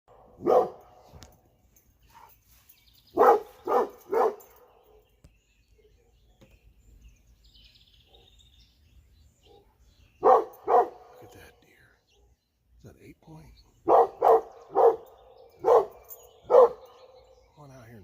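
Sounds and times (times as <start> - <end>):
dog barking: 0.1 - 1.3, 3.1 - 5.0, 8.1 - 8.4, 9.4 - 11.5, 13.8 - 17.2.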